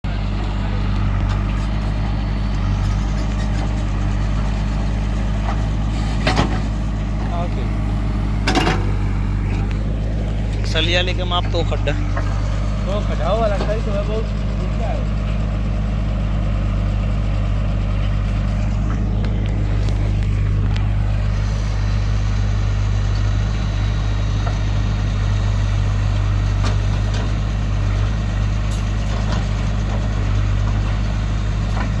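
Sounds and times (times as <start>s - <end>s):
tractor engine droning: 0.0s - 32.0s.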